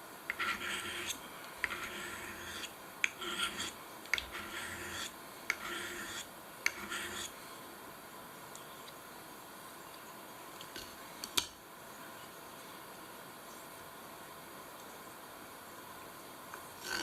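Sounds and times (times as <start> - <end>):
blade edge clicking on stone: 0.3 - 7.3
knife blade scraping sharpening stone: 0.3 - 7.3.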